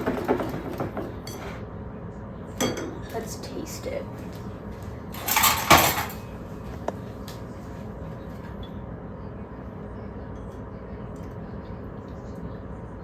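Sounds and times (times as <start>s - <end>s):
kitchen things clattering: 0.0s - 1.6s, 2.6s - 6.9s.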